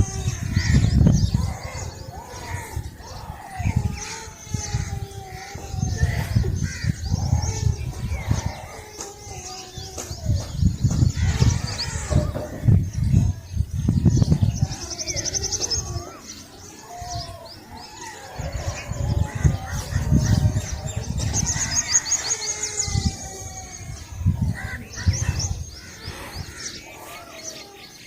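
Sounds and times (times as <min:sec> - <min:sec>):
birds chirping and singing: 0:00.0 - 0:28.0
low rumbling thuds: 0:09.8 - 0:14.7.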